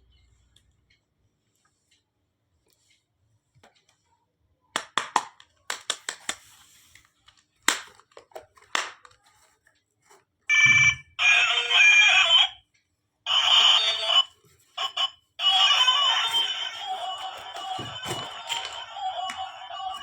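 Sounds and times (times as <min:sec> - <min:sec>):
toy kitchen pieces clicking: 0:07.6 - 0:09.6
electronic ringing melody: 0:14.9 - 0:20.0.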